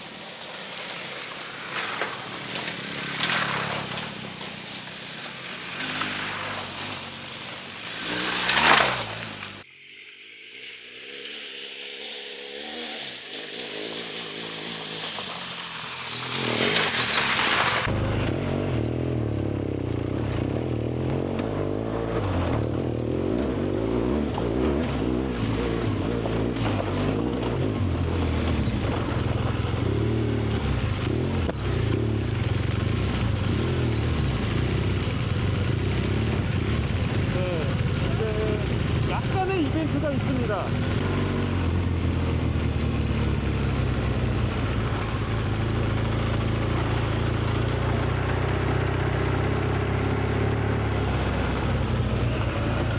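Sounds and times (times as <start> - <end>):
motorcycle engine running: 0.6 - 9.7, 11.4 - 52.9.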